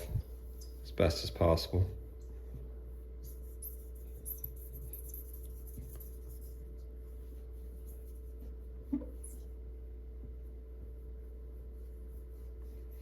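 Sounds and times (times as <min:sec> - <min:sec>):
low electrical hum: 0:00.0 - 0:13.0
wet wipe rubbing on glass: 0:03.0 - 0:09.5.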